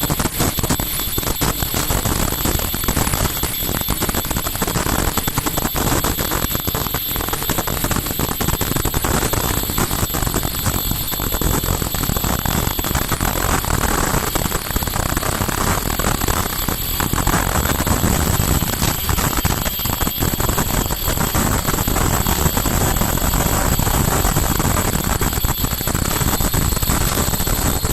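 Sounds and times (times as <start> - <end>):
high machine whine: 0.0 - 27.9
machine clatter of rapid ticks: 0.0 - 27.9.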